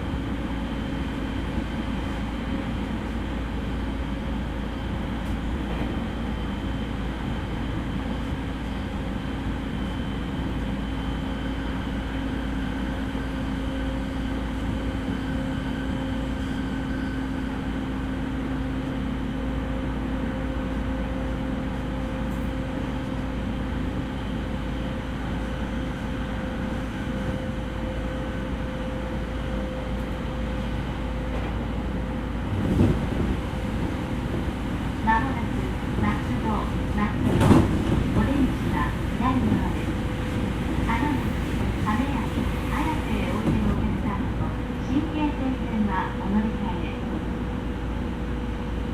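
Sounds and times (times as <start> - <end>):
steady train hums: 0.0 - 48.9
train wheels rumbling on rail: 0.0 - 48.9
train knock: 35.6 - 39.9.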